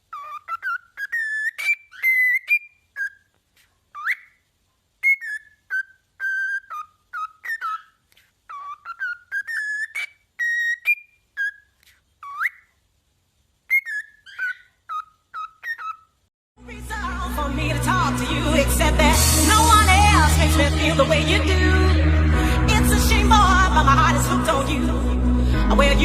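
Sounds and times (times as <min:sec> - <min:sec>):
parrot whistling a tune: 0:00.1 - 0:03.3, 0:03.9 - 0:04.4, 0:05.0 - 0:12.7, 0:13.7 - 0:16.1.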